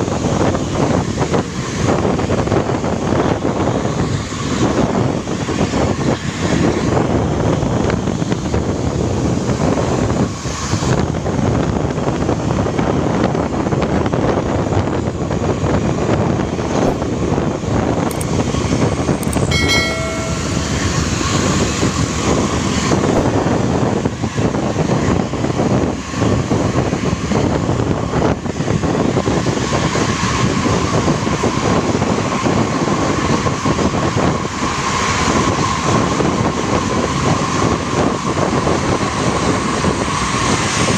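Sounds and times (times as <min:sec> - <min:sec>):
road and wind noise: 0:00.0 - 0:40.9
steady engine whine: 0:13.4 - 0:40.9.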